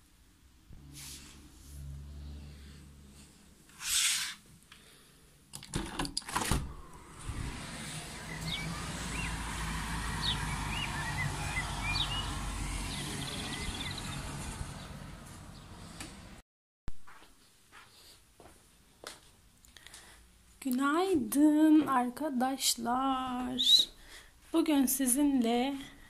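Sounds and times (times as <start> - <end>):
low rumble of traffic: 0.3 - 5.5, 6.6 - 16.4
sliding door clattering open: 5.7 - 9.0
small birds chirping: 7.9 - 16.0, 23.5 - 23.9.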